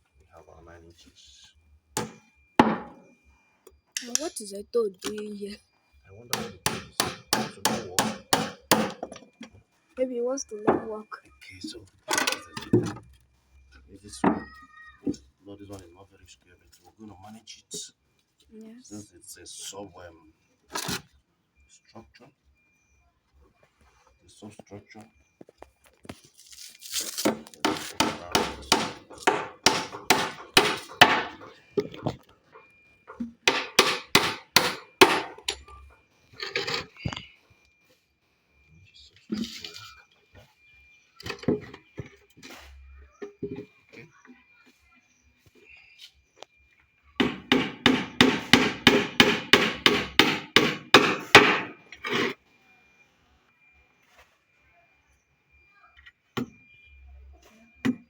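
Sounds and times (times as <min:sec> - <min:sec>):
hammer driving nails into wood: 0:02.0 - 0:03.0, 0:06.3 - 0:09.2, 0:27.2 - 0:31.4, 0:33.4 - 0:35.6, 0:47.2 - 0:51.8.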